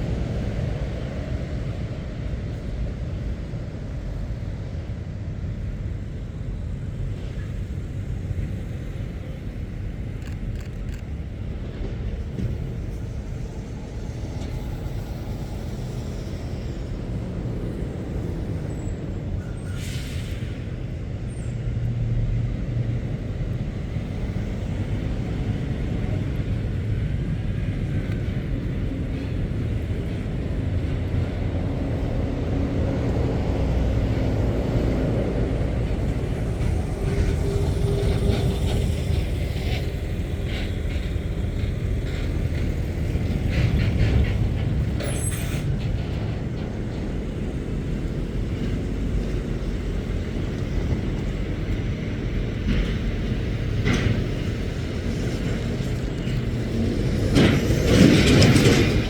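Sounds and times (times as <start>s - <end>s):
lorry engines rumbling: 0.0s - 59.0s
sharp clicks and hisses: 9.7s - 16.7s.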